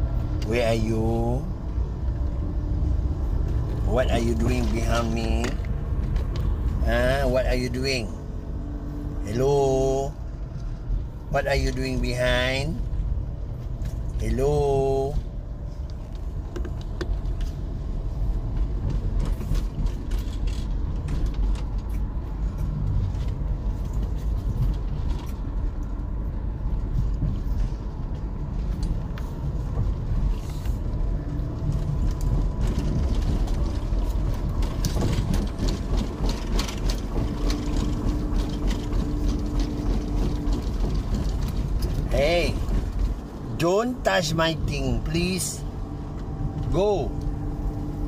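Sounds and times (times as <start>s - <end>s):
road and engine rumble: 0.0s - 48.0s
small clicks and rattles: 18.4s - 26.1s, 26.8s - 43.5s.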